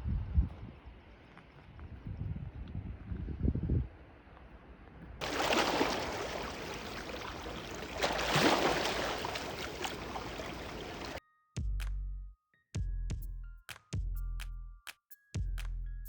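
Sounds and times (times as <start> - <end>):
sea waves washing onto shore: 5.2 - 11.2.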